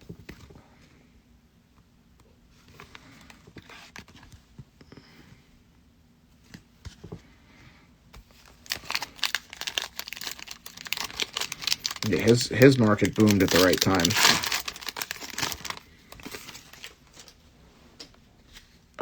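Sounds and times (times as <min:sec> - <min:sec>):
card pack wrapper tearing and crinkling: 0:08.3 - 0:17.4.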